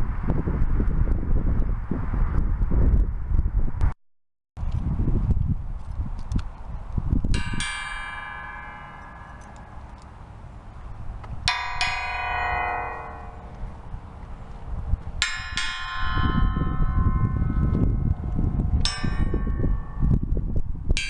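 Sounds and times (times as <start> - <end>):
low rumble: 0.0 - 4.0, 4.6 - 21.0
bicycle bell ringing: 11.5 - 13.6, 15.2 - 18.1.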